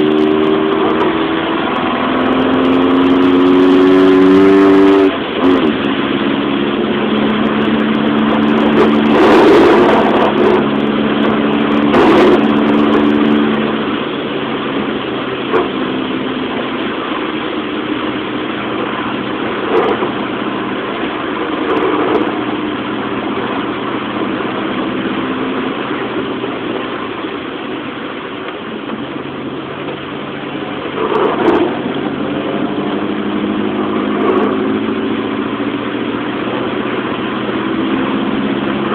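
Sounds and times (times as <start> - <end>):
car engine running: 0.0 - 38.9
rain and tyre spray hiss: 0.0 - 38.9.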